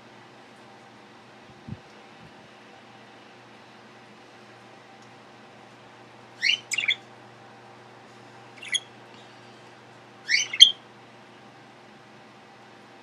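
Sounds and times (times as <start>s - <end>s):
parrot chirping: 6.4s - 7.0s, 8.6s - 8.9s, 10.3s - 10.8s.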